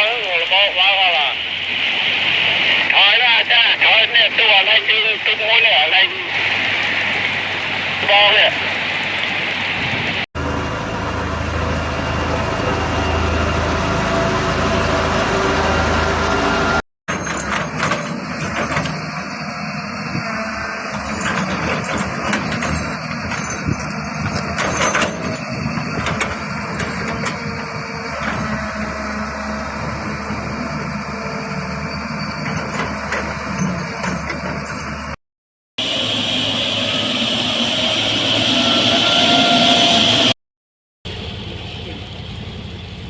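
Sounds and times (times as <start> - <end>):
heavy machinery engine hum: 1.2 - 35.1, 35.8 - 40.4, 41.1 - 43.0
machinery knocks and clanks: 17.1 - 19.2, 21.0 - 27.4.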